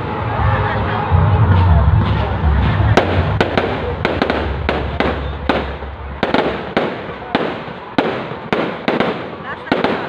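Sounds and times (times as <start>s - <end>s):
fireworks bangs: 2.0s - 10.0s
fireworks crackling: 2.0s - 10.0s.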